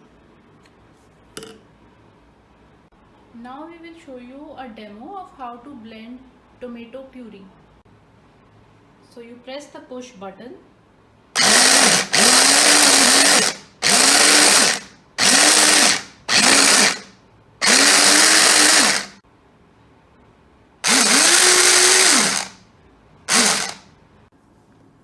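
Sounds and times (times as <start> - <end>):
hand blender motor bursts: 11.4 - 19.2, 20.8 - 22.6, 23.3 - 23.8.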